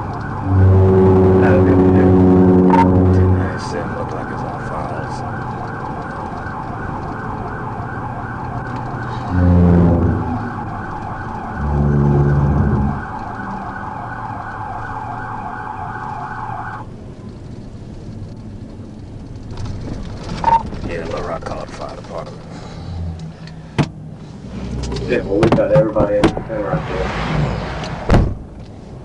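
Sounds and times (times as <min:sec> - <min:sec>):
police siren yelping: 0:00.0 - 0:16.9
car road and engine noise: 0:00.0 - 0:29.0
loud car horn blasts: 0:00.4 - 0:03.6, 0:09.3 - 0:10.4.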